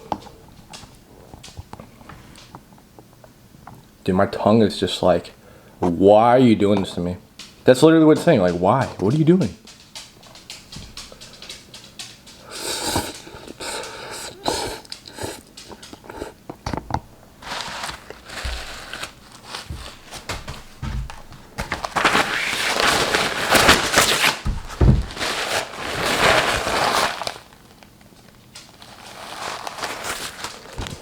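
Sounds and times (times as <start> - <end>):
chewing clicks and smacks: 9.6 - 16.7
hard breathing through mouth: 12.4 - 16.5
noodle slurping: 12.4 - 16.6.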